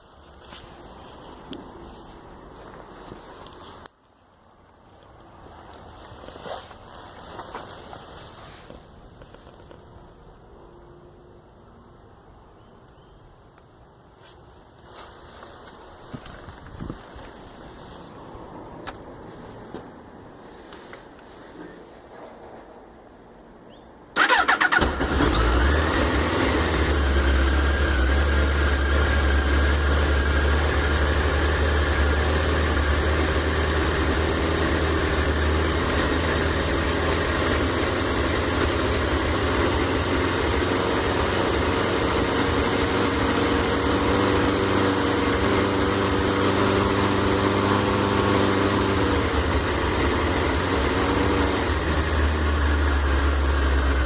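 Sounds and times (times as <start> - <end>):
motorcycle engine cranking: 24.2 - 30.6
motorcycle engine idling: 24.2 - 54.0.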